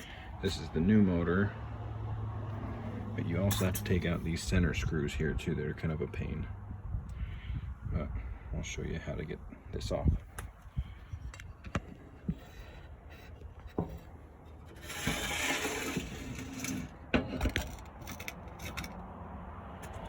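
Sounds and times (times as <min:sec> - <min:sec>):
rasping scrape: 0:12.2 - 0:19.0
tools clicking and knocking on metal: 0:16.6 - 0:19.1.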